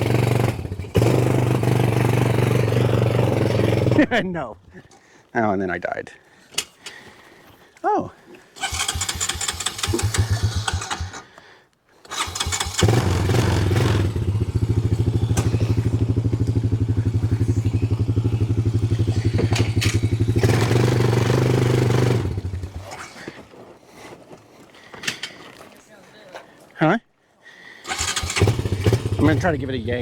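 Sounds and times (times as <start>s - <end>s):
small engine running: 0.0s - 4.1s, 8.6s - 11.2s, 12.1s - 23.0s, 27.9s - 30.0s.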